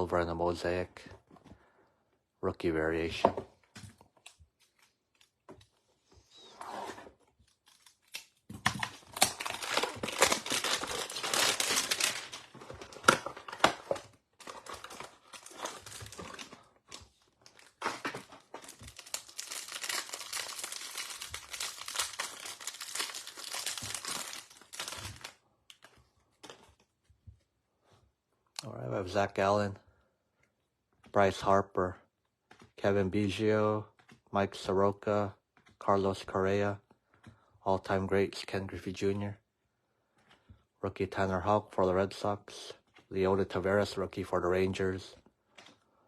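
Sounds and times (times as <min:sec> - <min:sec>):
plastic wrapping crinkling and tearing: 0:07.4 - 0:26.6.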